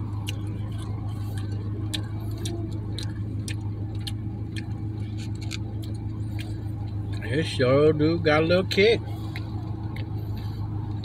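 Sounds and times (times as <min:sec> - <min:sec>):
truck engine idling: 0:00.0 - 0:11.0
chewing noodles: 0:00.1 - 0:07.2
sharp mouth clicks: 0:00.2 - 0:06.6.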